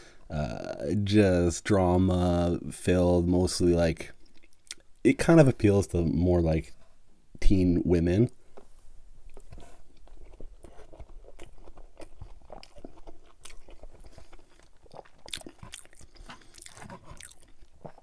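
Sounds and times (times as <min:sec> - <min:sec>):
man chewing with mouth clicks: 0:04.2 - 0:05.0, 0:09.2 - 0:18.0.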